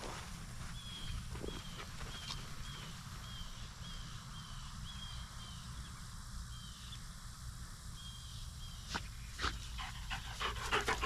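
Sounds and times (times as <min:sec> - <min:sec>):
bird chirping: 0:00.8 - 0:07.1.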